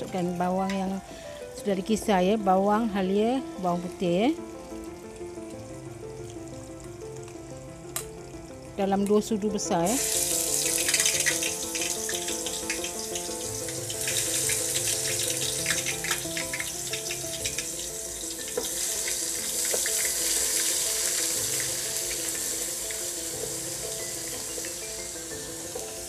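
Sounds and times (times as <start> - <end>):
background music: 0.0 - 26.0
paste sizzling in hot oil: 9.7 - 26.0.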